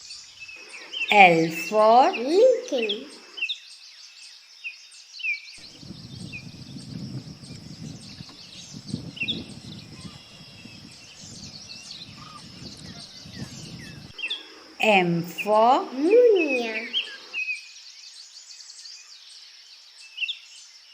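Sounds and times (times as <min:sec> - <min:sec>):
songbird chirping: 0:00.0 - 0:20.9
low outdoor rumble: 0:05.6 - 0:14.2.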